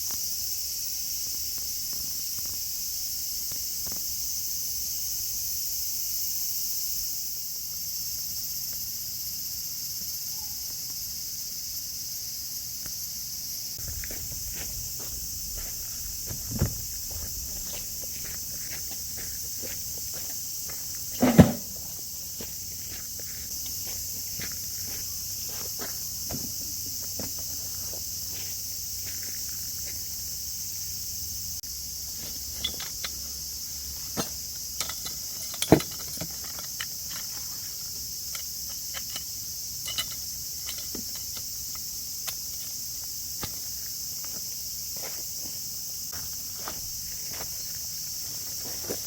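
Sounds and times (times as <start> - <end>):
crickets and cicadas chirring: 0.0 - 49.0
loud thumps: 13.8 - 18.4, 21.2 - 21.9
footsteps: 13.8 - 30.1, 43.4 - 49.0
handling clicks and knocks: 21.1 - 21.9, 32.2 - 33.4, 34.1 - 37.6, 38.3 - 42.8.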